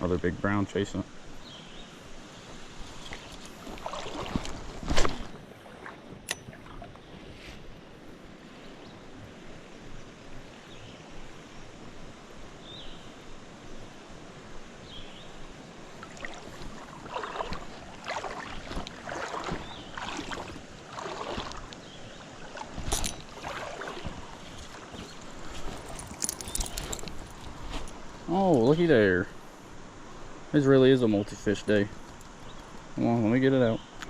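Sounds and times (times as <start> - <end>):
creek water running: 0.0 - 29.5
rustling and splashing: 2.5 - 7.8, 15.8 - 28.8.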